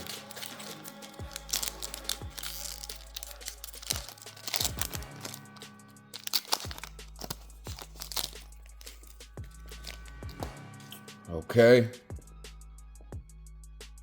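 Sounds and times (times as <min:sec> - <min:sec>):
wrapper crinkling and tearing: 0:00.0 - 0:11.0
background music: 0:00.0 - 0:14.0.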